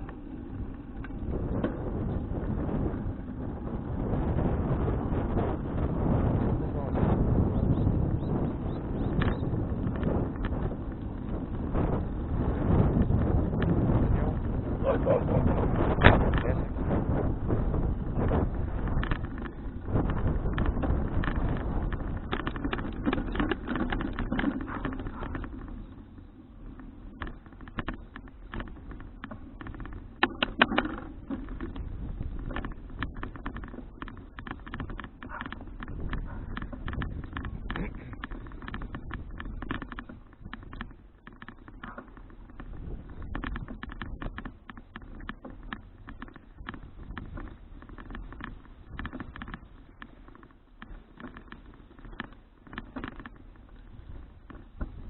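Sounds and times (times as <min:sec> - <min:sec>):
wind rush: 0:00.0 - 0:25.4
bicycle clicks and rattles: 0:00.0 - 0:55.0
tyre and wind rumble: 0:00.0 - 0:55.0.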